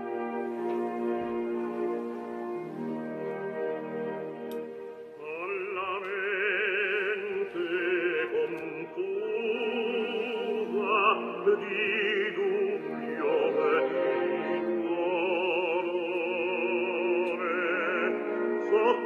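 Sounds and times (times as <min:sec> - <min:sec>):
orchestral chords: 0:00.0 - 0:19.0
operatic singing: 0:05.1 - 0:19.0.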